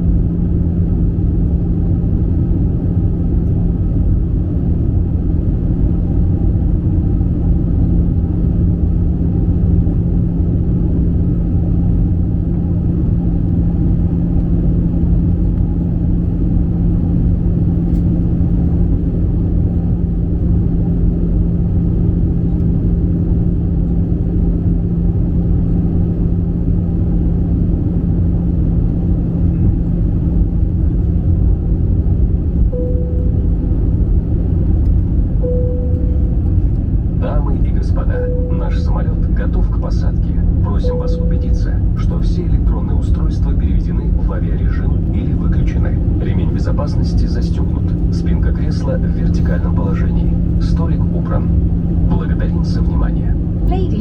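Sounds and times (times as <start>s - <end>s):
constant hum: 0.0s - 54.0s
jet engine cabin rumble: 0.0s - 54.0s
faint steady tone: 32.7s - 33.7s, 35.4s - 36.3s, 38.0s - 39.2s, 40.7s - 42.1s.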